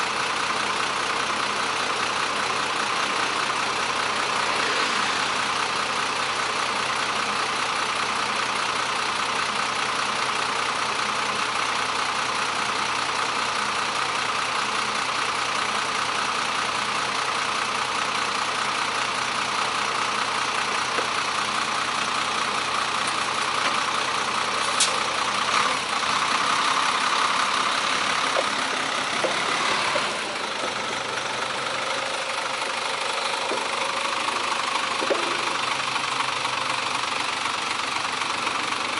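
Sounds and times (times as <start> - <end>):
road and wind noise: 3.0 - 6.6, 20.8 - 38.2.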